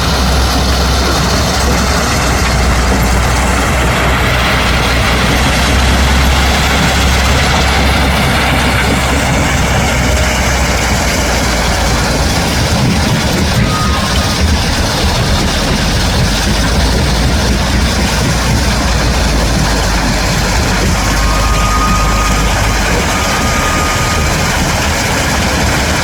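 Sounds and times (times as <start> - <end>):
dump truck engine rumbling: 0.0 - 26.0.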